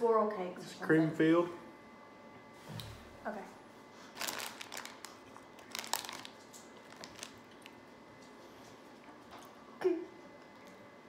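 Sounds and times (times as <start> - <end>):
snack clicks and rustles: 4.1 - 8.8.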